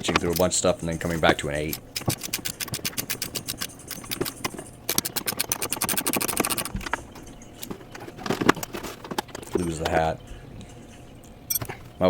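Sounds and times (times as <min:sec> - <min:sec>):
socket ratchet clicking: 0:01.6 - 0:07.0.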